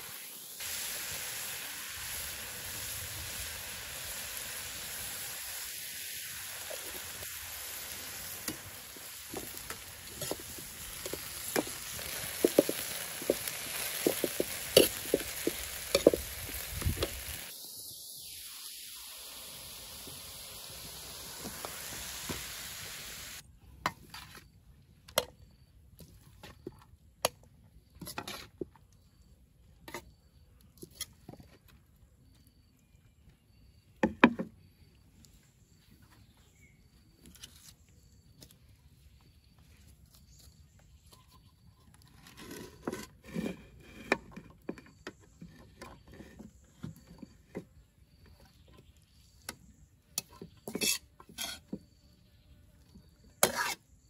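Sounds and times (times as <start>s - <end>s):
food sizzling in a pan: 0.0s - 23.4s, 53.4s - 53.8s.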